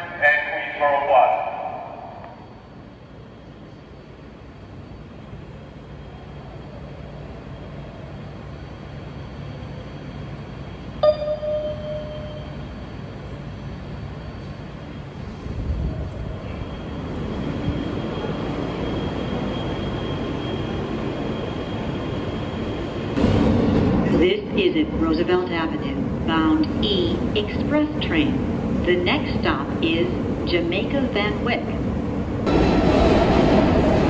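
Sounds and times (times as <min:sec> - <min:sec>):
subway train rumble: 0:00.0 - 0:34.0
train running noise: 0:00.0 - 0:34.0
sharp clank with ringing tone: 0:11.0 - 0:12.6.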